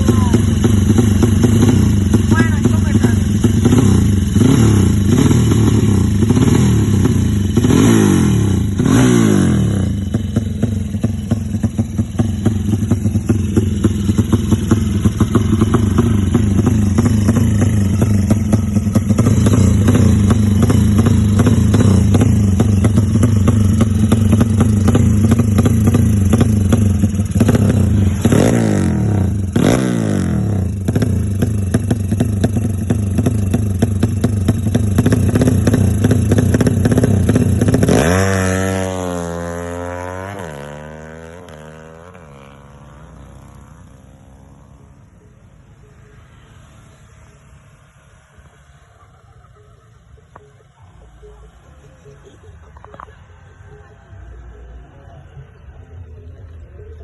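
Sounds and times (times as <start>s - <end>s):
engine revving: 0.0s - 44.4s.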